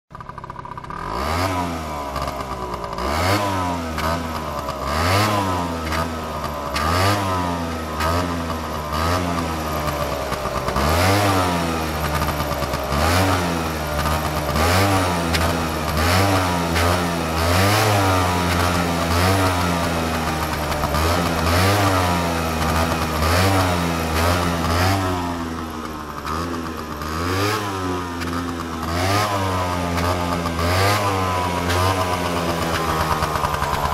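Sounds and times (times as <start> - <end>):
scooter engine revving: 0.1 - 33.9.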